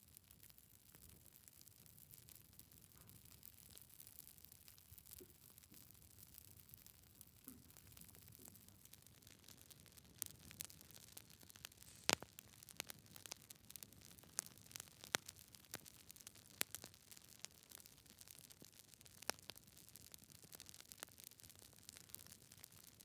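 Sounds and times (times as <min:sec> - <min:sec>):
wood fire crackling: 0:00.0 - 0:23.0
pops and snaps from burning logs: 0:03.4 - 0:23.0
soft hiss: 0:11.6 - 0:12.8.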